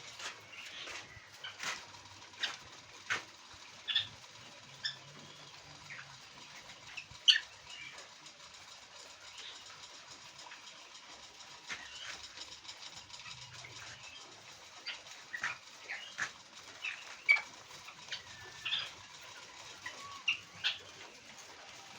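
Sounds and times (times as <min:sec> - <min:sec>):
quail chirping: 0:03.8 - 0:04.2, 0:06.9 - 0:07.8, 0:14.8 - 0:21.1.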